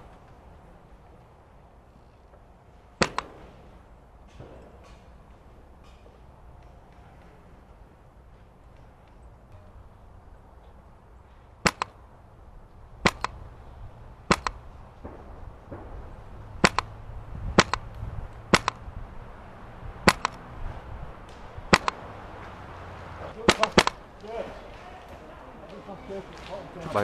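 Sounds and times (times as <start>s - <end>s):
airsoft gun shots: 3.0s - 3.6s, 11.6s - 12.0s, 13.0s - 13.4s, 14.3s - 17.9s, 18.5s - 18.8s, 20.0s - 20.4s, 21.7s - 22.1s, 23.4s - 24.0s
wind on microphone: 12.6s - 21.8s.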